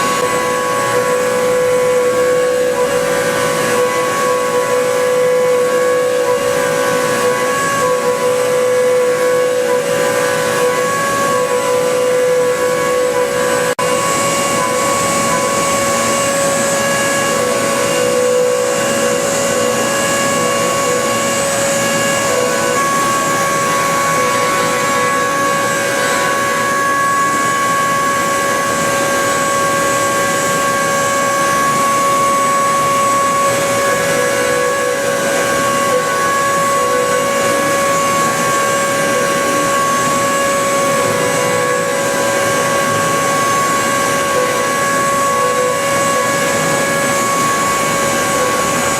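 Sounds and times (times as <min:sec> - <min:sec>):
mill whine: 0:00.0 - 0:48.9.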